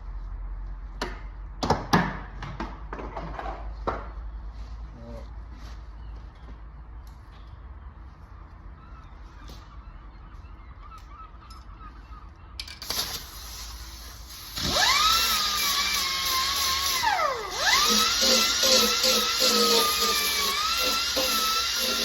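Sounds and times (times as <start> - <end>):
power grinder grinding metal: 14.2 - 22.0.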